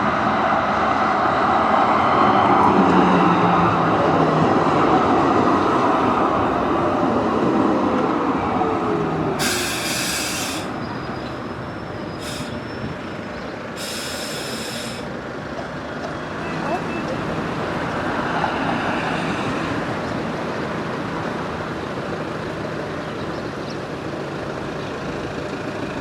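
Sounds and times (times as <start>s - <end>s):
tram running on rails: 0.0s - 26.0s
short high hissing bursts: 9.4s - 10.8s, 12.2s - 12.6s, 13.8s - 15.1s.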